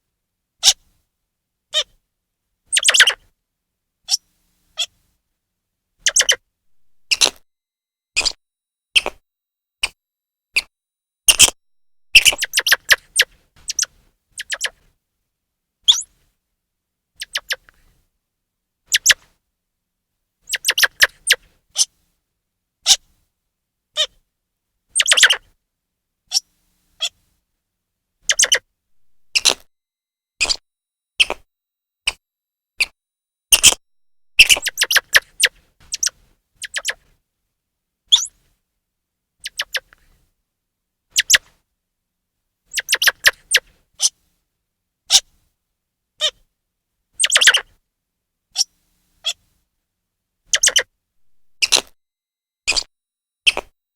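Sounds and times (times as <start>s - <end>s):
squirrel chirping alarm calls: 2.7s - 3.2s, 6.1s - 7.3s, 12.1s - 14.7s, 25.0s - 25.4s, 28.3s - 29.6s, 34.4s - 37.0s, 39.4s - 39.9s, 41.2s - 41.4s, 42.7s - 43.6s, 47.2s - 47.6s, 50.5s - 51.8s.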